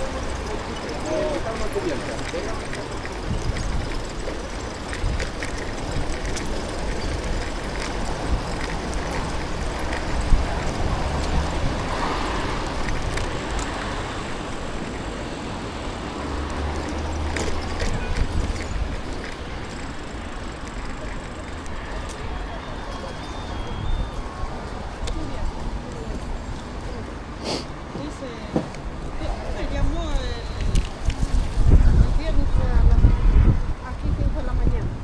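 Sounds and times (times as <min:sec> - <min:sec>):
bicycle clicks and rattles: 0:00.0 - 0:23.6
passing traffic: 0:00.0 - 0:35.0
road and wind rumble: 0:00.0 - 0:35.0.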